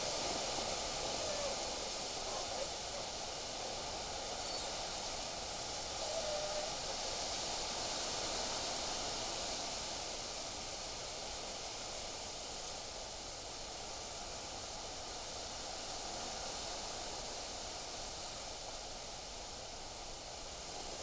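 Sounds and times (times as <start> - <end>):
wind through trees: 0.0 - 8.6
faint short chirps: 1.0 - 4.8, 5.7 - 7.2.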